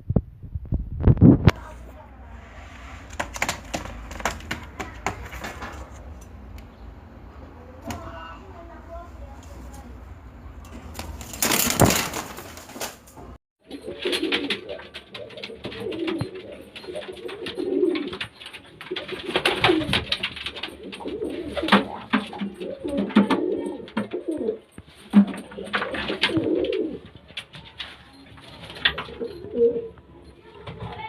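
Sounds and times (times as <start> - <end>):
loud rushing noise: 2.1 - 4.1
pigeons cooing: 13.7 - 27.4, 28.6 - 30.0.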